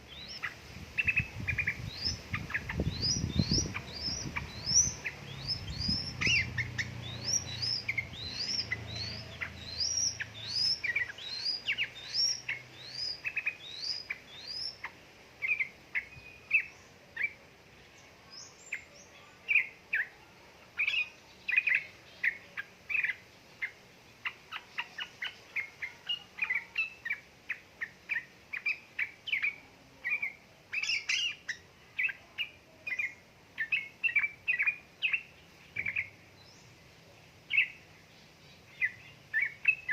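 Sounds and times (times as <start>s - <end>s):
bird chattering chirps: 0.1s - 17.4s.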